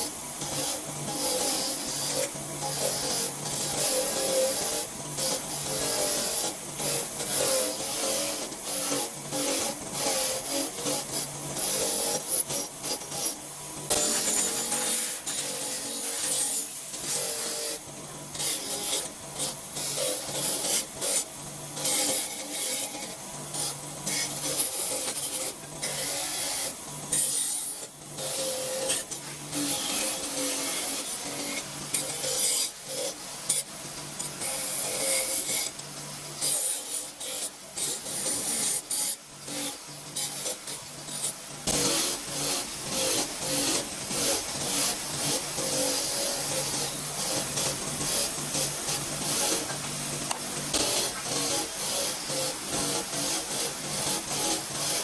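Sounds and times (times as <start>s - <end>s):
hand file scraping metal: 23.7s - 35.8s.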